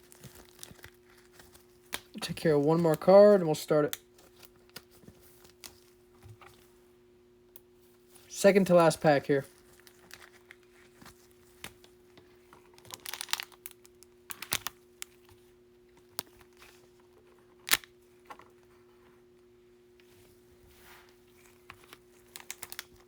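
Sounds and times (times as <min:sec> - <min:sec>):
card pack wrapper crinkling: 0:00.0 - 0:05.9, 0:09.4 - 0:11.8, 0:12.6 - 0:15.2, 0:21.7 - 0:23.0
faint steady hum: 0:00.0 - 0:23.0.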